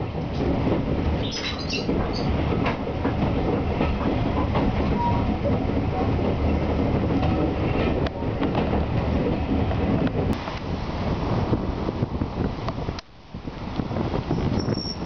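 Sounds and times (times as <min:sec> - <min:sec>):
train carriage rumbling on rails: 0:00.0 - 0:15.0
short high squeaks: 0:14.3 - 0:15.0.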